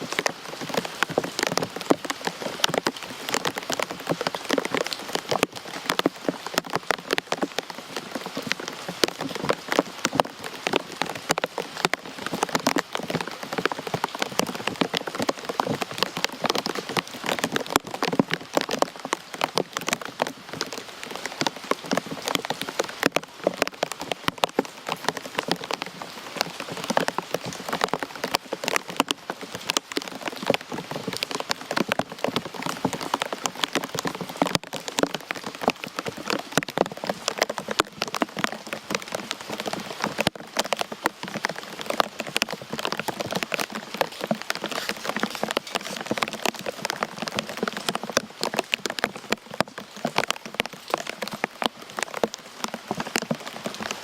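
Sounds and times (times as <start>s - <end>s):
rain pattering on hard surface: 0.0s - 54.0s.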